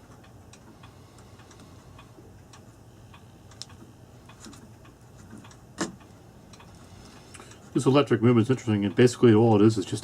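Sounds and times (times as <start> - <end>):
low steady hum: 0.0 - 10.0
light clicks and taps: 0.1 - 7.7.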